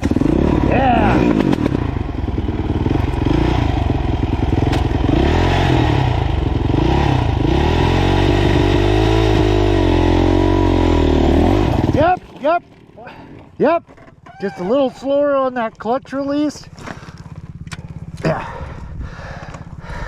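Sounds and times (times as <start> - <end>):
dirt bike engine revving: 0.0 - 13.7.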